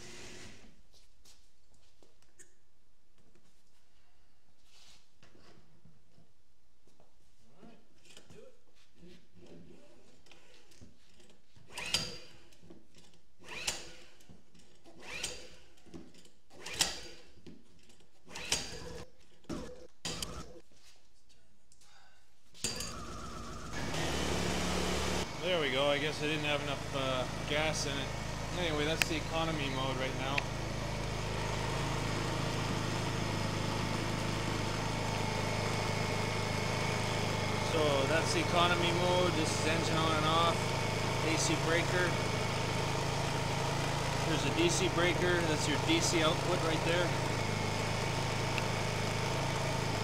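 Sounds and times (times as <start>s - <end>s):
generator pull-starter whirring: 11.6s - 20.6s, 22.6s - 50.0s.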